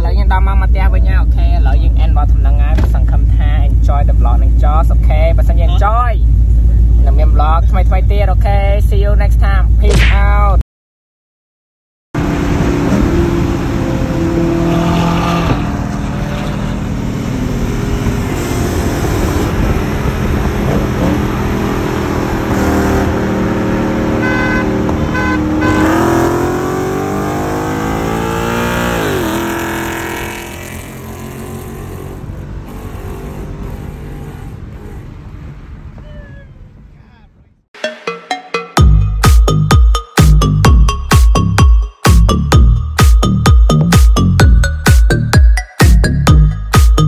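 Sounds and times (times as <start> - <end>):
car engine revving: 12.2 - 36.0.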